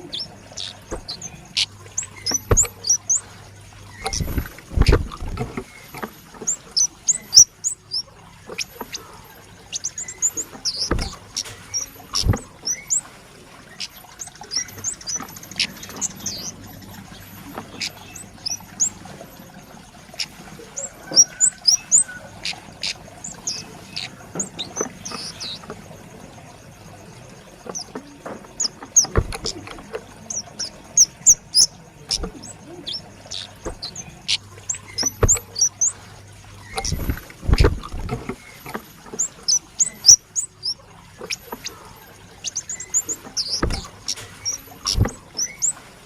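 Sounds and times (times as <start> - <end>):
bird chipping calls: 0.0 - 25.7, 27.6 - 45.8
sharp knocks: 2.3 - 2.8, 10.7 - 11.2, 35.0 - 35.4.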